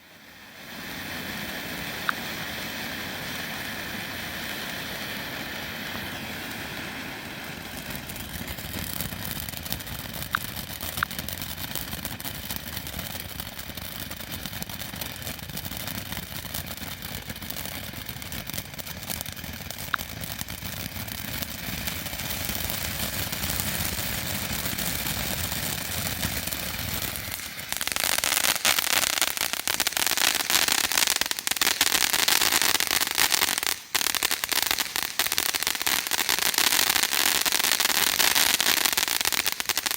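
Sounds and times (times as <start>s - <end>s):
firework fountain hissing: 0.0s - 39.9s
loud dense crackle: 3.3s - 39.9s
scattered pops: 10.2s - 12.2s, 13.6s - 23.5s, 24.6s - 39.9s.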